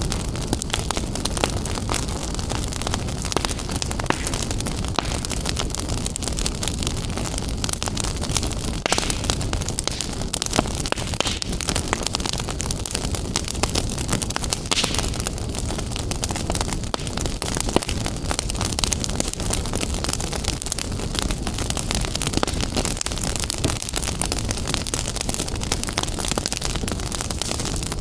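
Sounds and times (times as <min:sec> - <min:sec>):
low rumble of flames: 0:00.0 - 0:28.0
wood fire crackling: 0:00.0 - 0:28.0.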